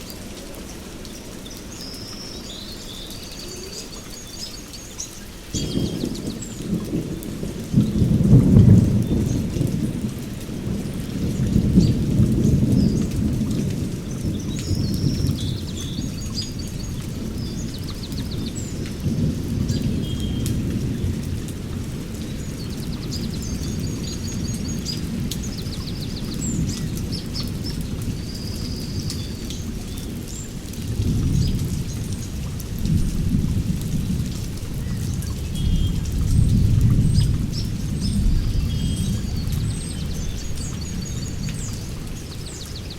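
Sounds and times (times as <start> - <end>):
small birds chirping: 0.0 - 8.2, 10.9 - 21.5, 22.1 - 32.5, 34.0 - 42.9
rain pattering: 0.0 - 42.9
thunder rumbling: 5.5 - 42.9.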